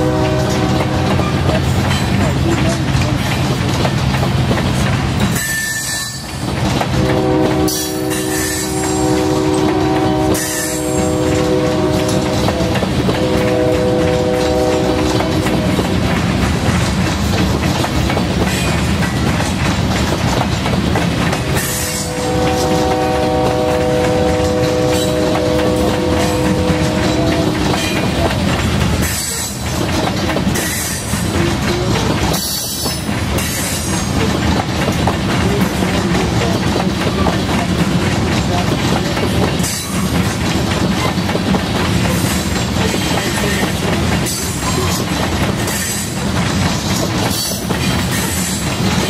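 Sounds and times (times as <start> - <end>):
locomotive horn blasts: 0.0 - 1.4, 7.0 - 15.8, 21.6 - 28.2
freight train wheels rumbling: 0.0 - 49.0
high wheel squeals: 5.4 - 6.4.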